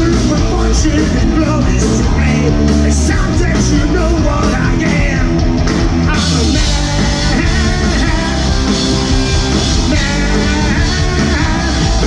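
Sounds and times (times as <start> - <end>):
live rock band playing: 0.0 - 12.0
person singing: 6.0 - 12.0.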